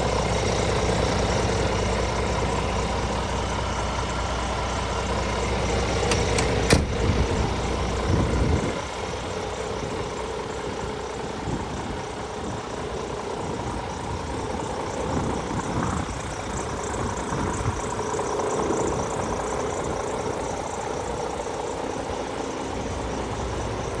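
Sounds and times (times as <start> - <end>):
diesel engine idling: 0.0 - 24.0
sharp click: 6.0 - 7.0.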